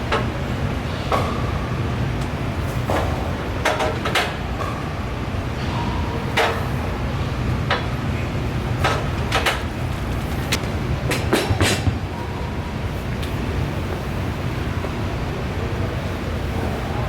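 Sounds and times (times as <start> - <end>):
sharp knocks and clanks: 10.5 - 12.1.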